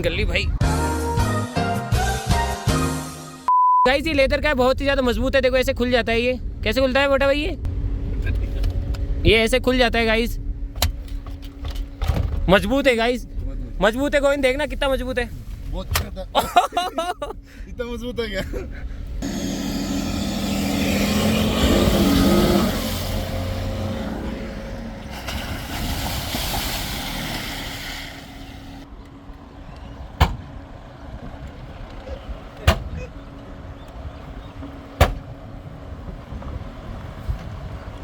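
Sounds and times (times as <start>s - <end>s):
car engine revving: 19.2s - 28.9s
rushing noise: 19.2s - 28.9s.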